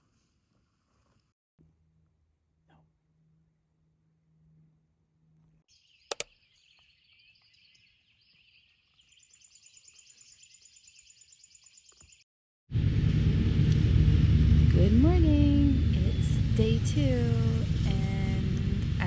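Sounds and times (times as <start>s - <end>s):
sharp double click: 6.1s - 6.3s
low hum: 12.7s - 19.0s.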